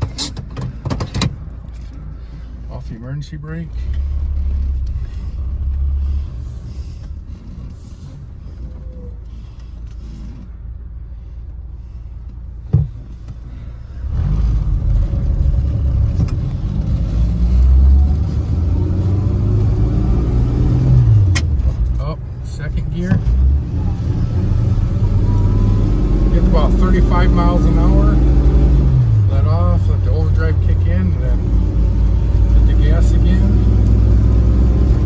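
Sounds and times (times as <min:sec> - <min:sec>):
car engine accelerating: 0:13.2 - 0:35.0.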